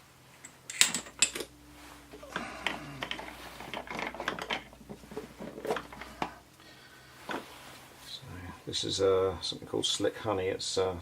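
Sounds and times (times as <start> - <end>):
small parts clicking and rustling: 0.4 - 6.4.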